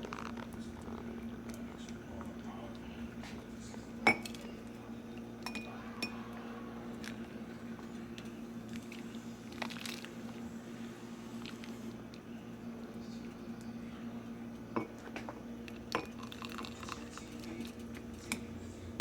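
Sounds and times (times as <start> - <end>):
steady low hum: 0.0 - 19.0
kitchenware clinking: 4.0 - 4.7, 5.4 - 6.2, 14.8 - 16.7.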